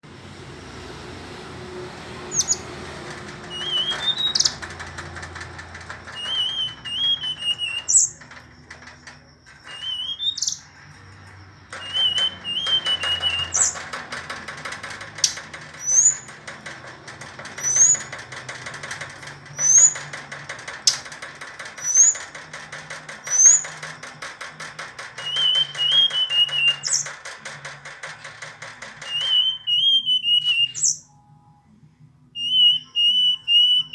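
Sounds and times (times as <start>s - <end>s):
buzzy rattling chatter: 0.1s - 31.0s
bird singing whistled notes: 6.2s - 8.2s, 9.7s - 10.7s, 11.8s - 13.8s, 25.2s - 27.1s, 29.0s - 31.3s, 32.4s - 33.9s.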